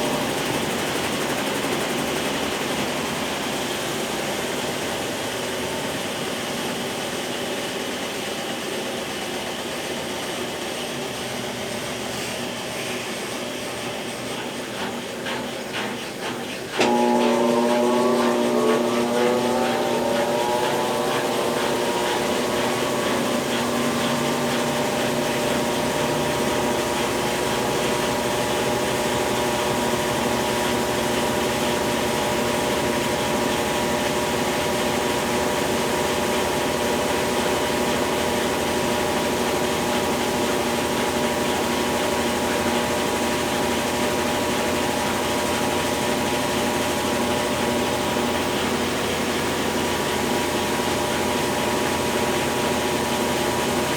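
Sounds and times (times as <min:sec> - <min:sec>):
washing machine motor whine: 0:00.0 - 0:53.9.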